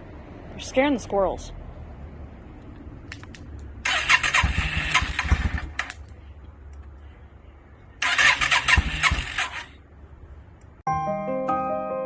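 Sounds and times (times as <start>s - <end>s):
engine turning over thumps: 3.7s - 6.0s, 8.0s - 9.7s
motorcycle electric starter cranking: 3.8s - 6.0s, 8.0s - 9.8s.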